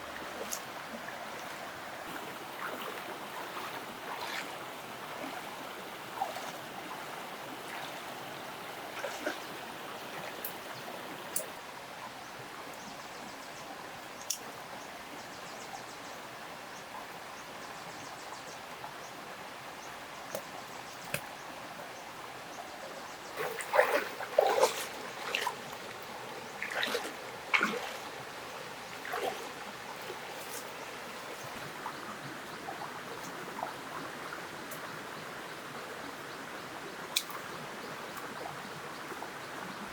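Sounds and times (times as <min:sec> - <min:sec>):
knocks and splashes: 0:23.4 - 0:26.0, 0:26.6 - 0:28.1, 0:29.0 - 0:29.5
water trickling: 0:23.4 - 0:34.9.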